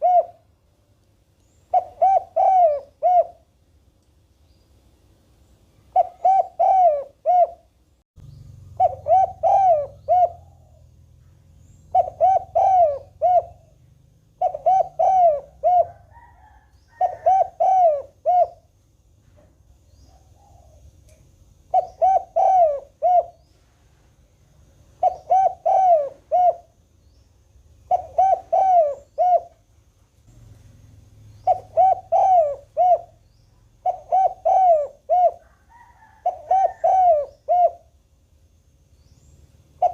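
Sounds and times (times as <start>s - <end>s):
dove cooing: 0.0s - 0.5s, 1.7s - 3.5s, 5.9s - 7.7s, 8.6s - 18.7s, 20.1s - 20.9s, 21.7s - 23.6s, 25.0s - 26.8s, 27.8s - 29.6s, 31.3s - 38.0s.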